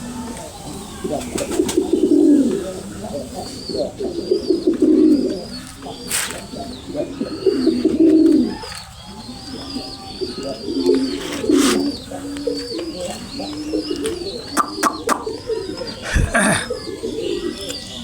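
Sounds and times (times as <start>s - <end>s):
pigeons cooing: 0.0s - 18.0s
thin high chirping: 13.9s - 16.8s.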